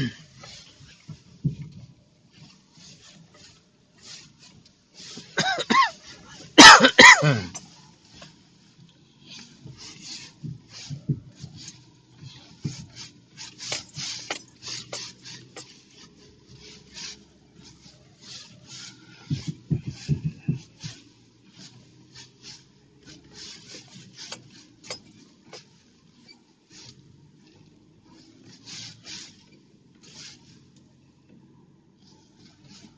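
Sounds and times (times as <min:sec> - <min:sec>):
scraping and rustling: 0:00.0 - 0:32.9.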